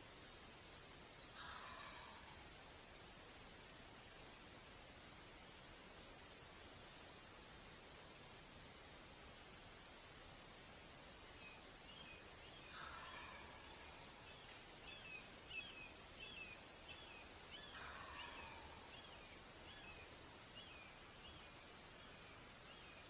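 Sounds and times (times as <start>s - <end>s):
distant turkey gobbling: 12.7s - 14.6s, 17.7s - 19.2s.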